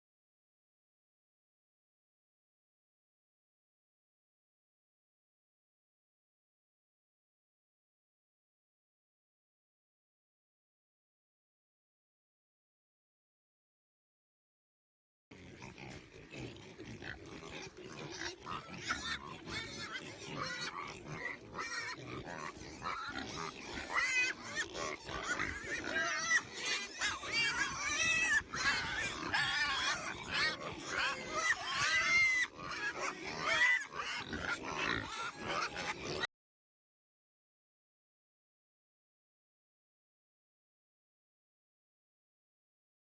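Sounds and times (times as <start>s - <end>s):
pigs squealing and grunting: 15.3s - 36.3s.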